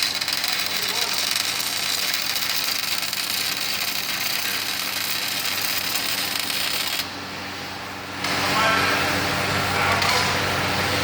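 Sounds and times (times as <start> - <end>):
welder arc crackling and hissing: 0.0 - 7.1.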